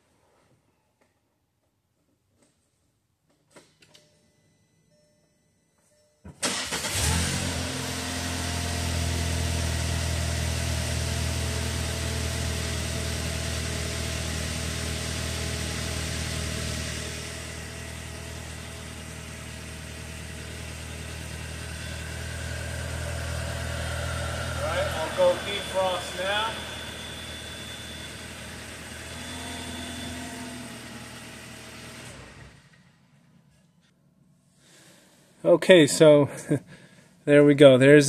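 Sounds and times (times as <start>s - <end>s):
car engine starting and idling: 6.3s - 33.5s.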